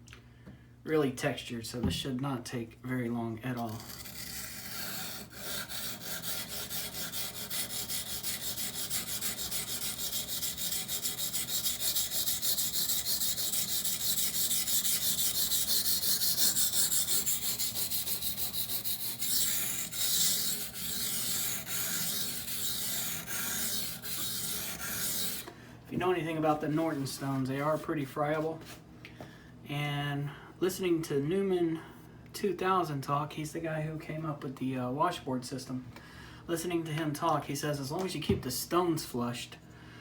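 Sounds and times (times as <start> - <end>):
knife scraping on whetstone: 3.6 - 25.5.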